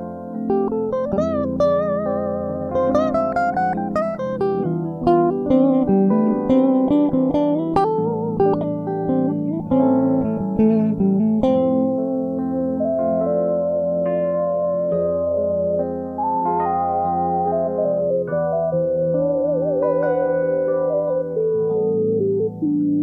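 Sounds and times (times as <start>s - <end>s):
solo guitar melody: 0.0s - 23.0s.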